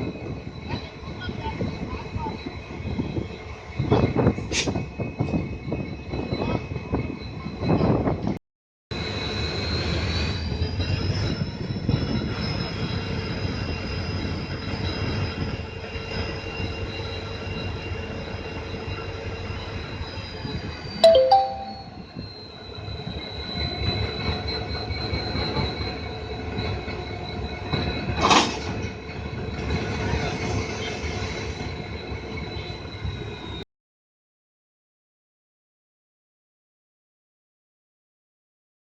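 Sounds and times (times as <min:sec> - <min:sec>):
train wheels squealing: 0:00.0 - 0:08.4, 0:09.0 - 0:21.3, 0:22.0 - 0:33.6
two-pitched tone: 0:21.0 - 0:22.0.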